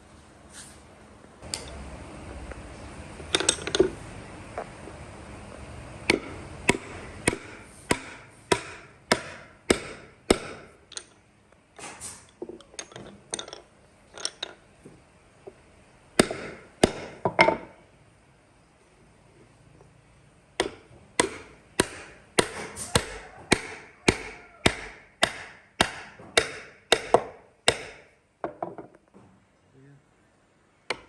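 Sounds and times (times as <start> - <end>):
hand tool striking wood: 6.1 - 10.8, 16.2 - 17.7, 20.6 - 28.6.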